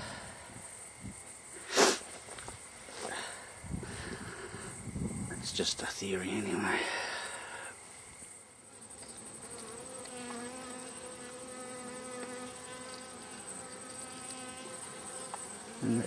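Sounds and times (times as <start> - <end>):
bees buzzing: 8.4 - 16.0
close bee humming: 8.5 - 16.0.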